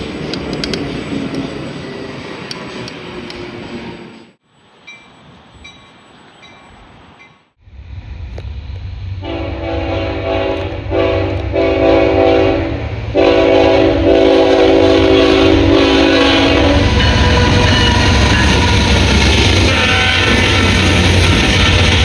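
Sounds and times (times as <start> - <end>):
passing train rumble: 0.0 - 22.0
train horn blasts: 9.2 - 21.0.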